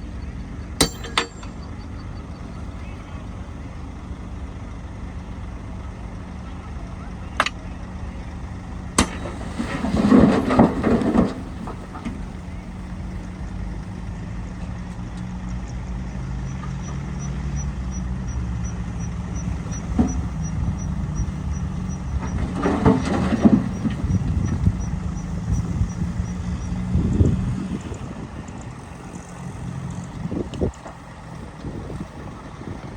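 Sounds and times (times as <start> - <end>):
bulldozer diesel engine running: 0.0 - 32.9
tracks and blade clanking: 0.8 - 2.0.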